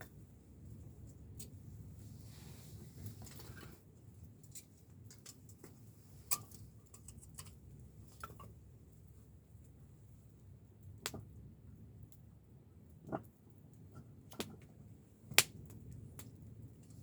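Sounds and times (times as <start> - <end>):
wood fire crackling: 0.0 - 17.0
fire pops and clicks: 11.0 - 11.4, 13.0 - 17.0.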